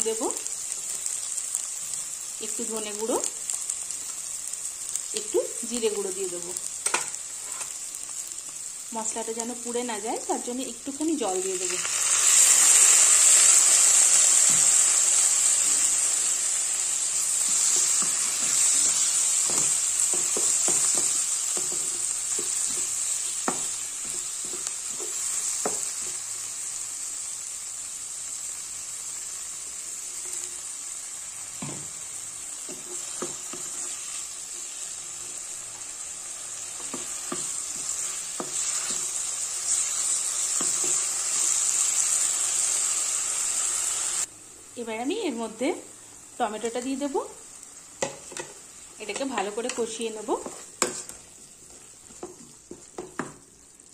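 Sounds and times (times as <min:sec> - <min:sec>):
onions and spices sizzling in oil: 0:00.0 - 0:53.9
utensil scraping and knocking pan: 0:48.0 - 0:51.2.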